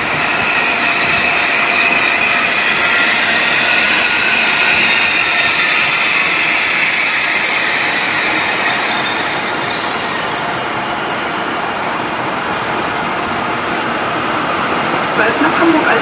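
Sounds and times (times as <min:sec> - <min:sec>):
high wheel squeal: 0:00.0 - 0:11.9
electric train rumble: 0:00.0 - 0:16.0.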